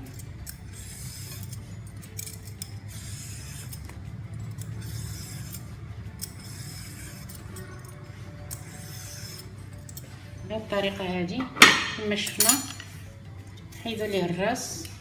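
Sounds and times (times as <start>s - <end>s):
peeler scraping cucumber skin: 4.5s - 7.6s.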